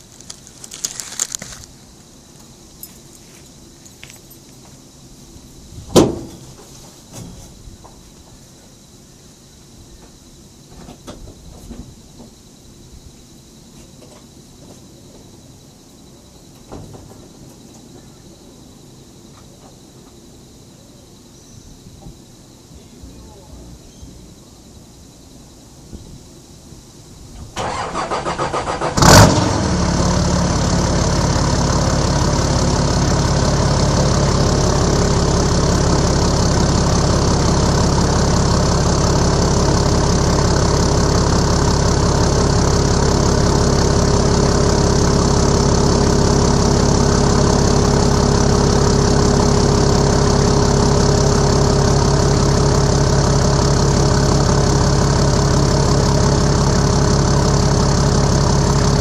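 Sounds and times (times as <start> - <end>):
diesel engine idling: 22.8 - 25.2, 27.6 - 59.0
diesel engine starting: 27.4 - 59.0.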